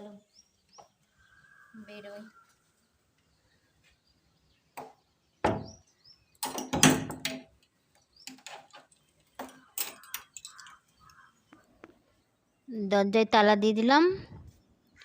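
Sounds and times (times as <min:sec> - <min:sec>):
lock clicks and rattles: 0:06.4 - 0:07.6.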